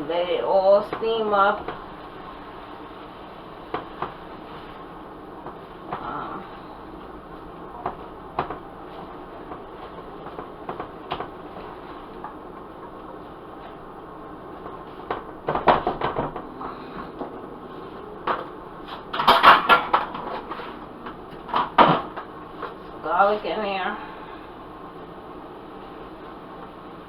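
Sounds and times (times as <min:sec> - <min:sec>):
steady low hiss: 0:00.0 - 0:27.0
pots and utensils clattering: 0:18.3 - 0:22.2.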